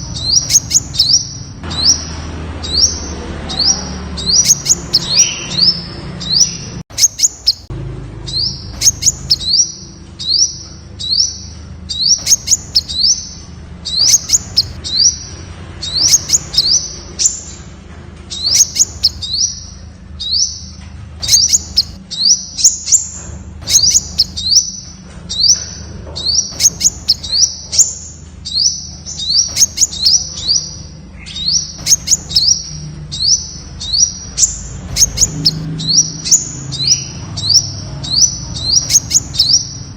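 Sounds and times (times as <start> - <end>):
bird calling high notes: 8.3 - 17.6.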